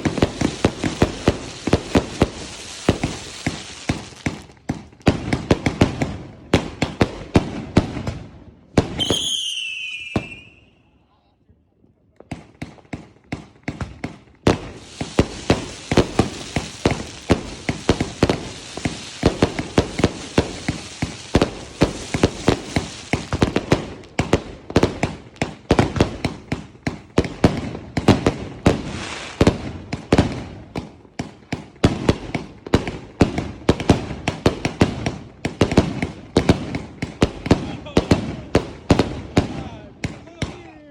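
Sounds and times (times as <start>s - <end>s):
steady hiss: 0.0s - 4.4s, 14.6s - 23.4s
firework cake firing shots: 0.0s - 8.2s, 12.2s - 40.7s.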